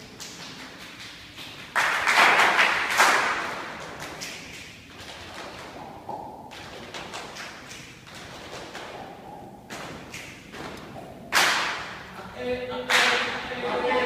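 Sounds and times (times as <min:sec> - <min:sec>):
hand claps and taps imitating rain: 0:00.2 - 0:04.7, 0:09.7 - 0:11.9.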